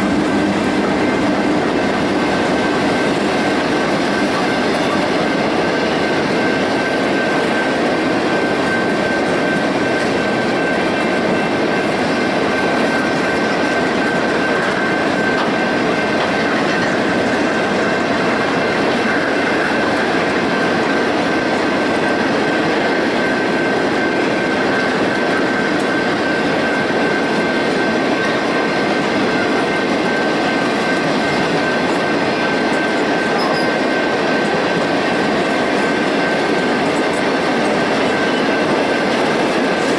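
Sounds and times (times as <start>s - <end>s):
steel wheels rumbling on rail: 0.0s - 39.9s
high-pitched wheel squeal: 31.2s - 34.5s.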